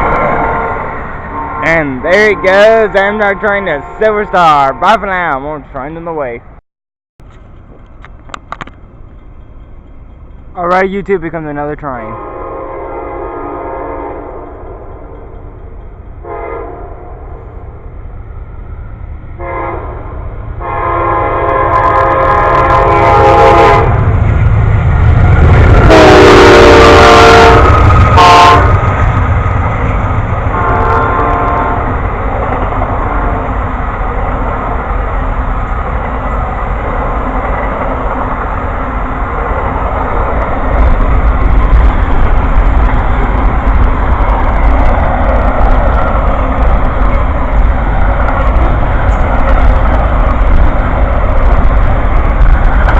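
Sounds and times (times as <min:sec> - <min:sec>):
train passing rumble: 0:00.0 - 0:06.6, 0:07.2 - 0:52.9
locomotive horn blasts: 0:00.6 - 0:05.1, 0:12.2 - 0:14.4, 0:16.2 - 0:17.1, 0:19.4 - 0:24.0, 0:25.8 - 0:28.8, 0:30.5 - 0:32.0.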